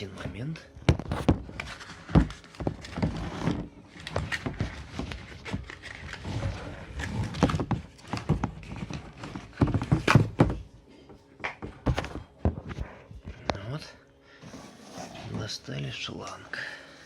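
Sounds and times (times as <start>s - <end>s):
packaging rustling: 1.0s - 10.4s.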